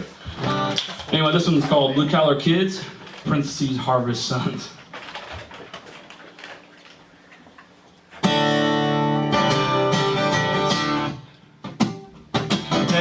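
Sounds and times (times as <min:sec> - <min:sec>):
guitar chords strummed: 0:08.2 - 0:13.0.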